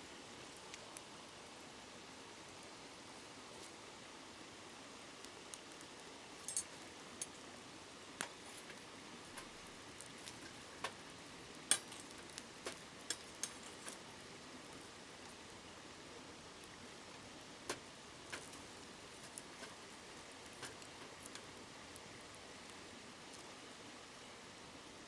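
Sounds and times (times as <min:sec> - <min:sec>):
campfire crackling and popping: 0:00.2 - 0:24.3.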